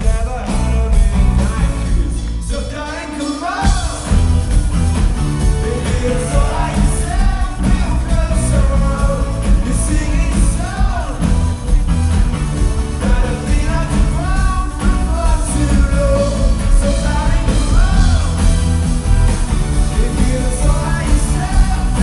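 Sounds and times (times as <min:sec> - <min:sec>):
rock band playing live: 0:00.0 - 0:22.0
person singing: 0:05.4 - 0:12.2, 0:12.9 - 0:18.7, 0:19.8 - 0:22.0.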